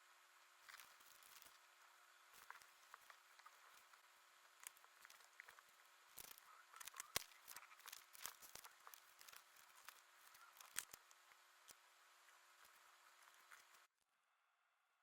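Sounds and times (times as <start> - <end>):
scissors snipping: 4.6 - 11.2
paper rustling: 4.6 - 11.4.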